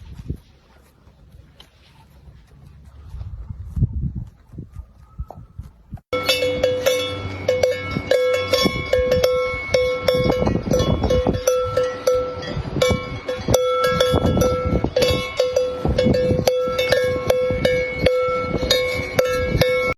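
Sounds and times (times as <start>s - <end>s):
metal bells clanking: 6.1s - 19.9s.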